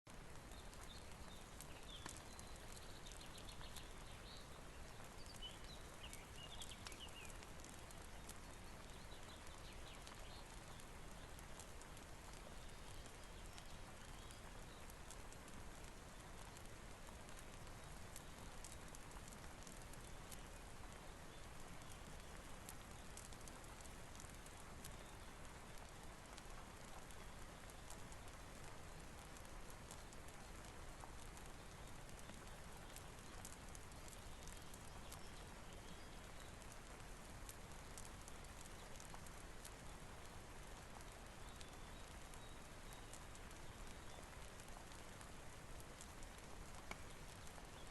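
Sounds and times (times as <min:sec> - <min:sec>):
faint steady rain: 0:00.0 - 0:47.9
water drips: 0:00.1 - 0:47.9.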